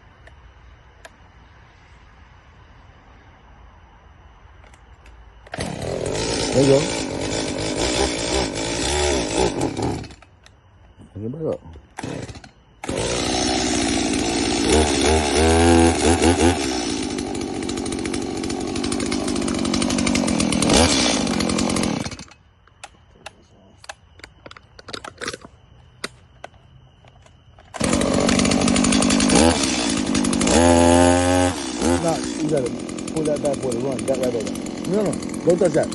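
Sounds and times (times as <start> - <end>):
chainsaw revving: 5.5 - 10.3, 12.0 - 22.4, 27.7 - 35.9.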